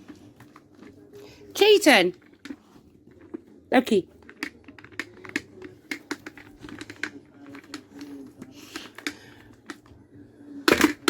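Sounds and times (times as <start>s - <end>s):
sharp plastic clatter: 4.2s - 8.1s, 10.7s - 11.0s
clicking and tapping on plastic toy: 4.2s - 9.9s.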